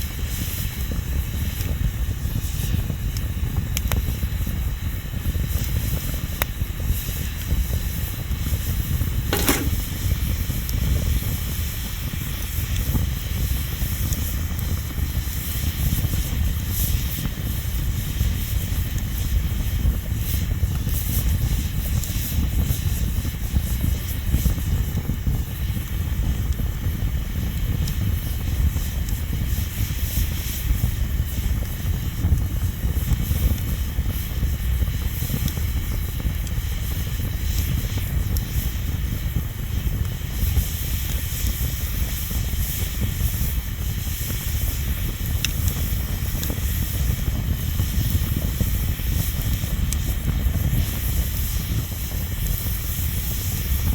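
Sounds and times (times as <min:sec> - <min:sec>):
bonfire rumbling: 0:12.1 - 0:53.9
burning wood crackling and popping: 0:23.4 - 0:53.9.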